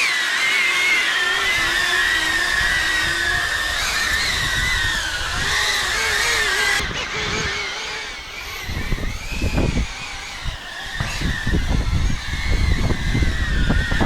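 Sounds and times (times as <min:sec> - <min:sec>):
drone propellers whining: 0:00.0 - 0:14.0.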